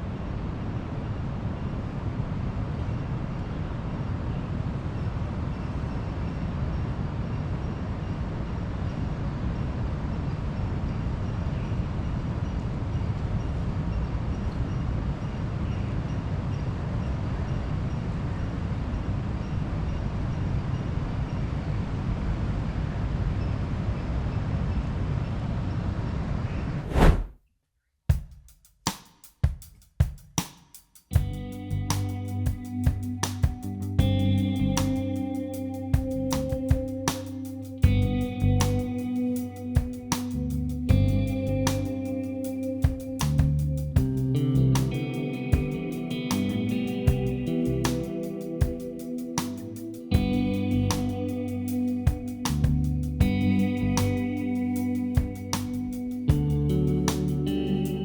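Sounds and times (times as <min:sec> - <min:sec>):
steady rushing noise: 0:26.5 - 0:27.3, 0:31.2 - 0:58.0
background music with drums: 0:28.1 - 0:35.2, 0:36.0 - 0:42.1, 0:42.8 - 0:57.7.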